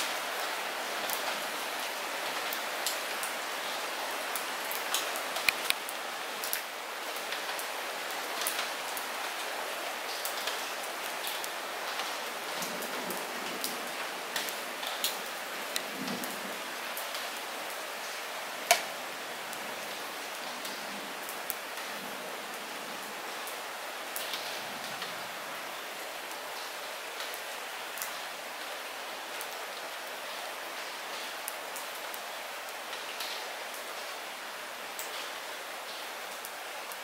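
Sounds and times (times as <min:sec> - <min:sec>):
light rain falling: 0:00.0 - 0:37.0
raindrop impacts: 0:05.4 - 0:05.9, 0:18.6 - 0:19.1.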